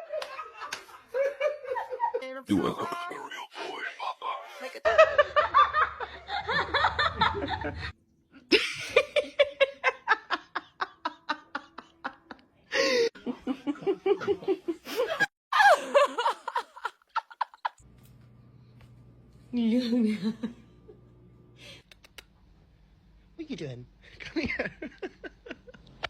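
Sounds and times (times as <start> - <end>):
people giggling: 0.0 - 3.0, 4.3 - 17.8, 24.1 - 26.0.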